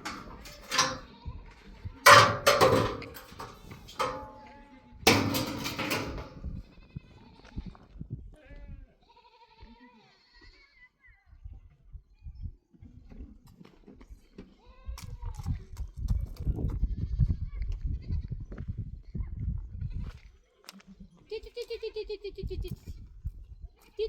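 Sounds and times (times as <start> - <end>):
livestock bleating: 9.0 - 10.9.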